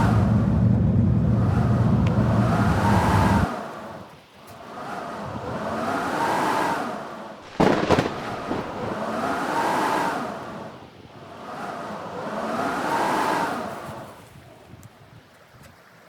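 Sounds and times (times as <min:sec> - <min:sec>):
wind howling in gusts: 0:00.0 - 0:15.2
sharp cracks or knocks: 0:07.4 - 0:09.2.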